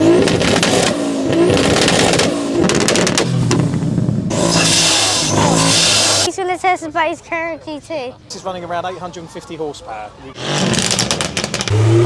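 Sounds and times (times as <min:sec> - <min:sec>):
car engines revving and accelerating: 0:00.0 - 0:06.3, 0:10.3 - 0:12.0.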